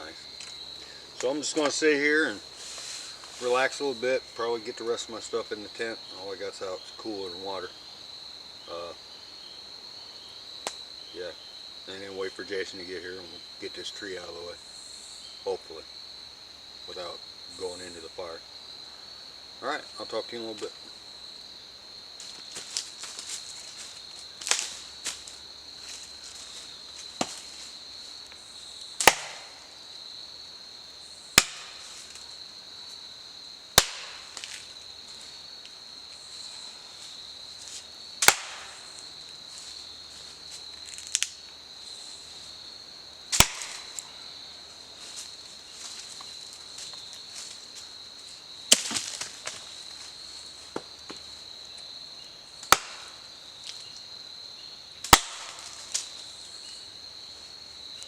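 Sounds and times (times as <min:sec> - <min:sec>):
high-pitched insect chorus: 0:00.0 - 0:58.0
campfire popping and cracking: 0:29.0 - 0:29.6, 0:31.4 - 0:31.8, 0:33.8 - 0:34.7, 0:38.2 - 0:39.0, 0:40.9 - 0:41.5, 0:43.3 - 0:44.1, 0:52.6 - 0:53.2, 0:55.0 - 0:56.1.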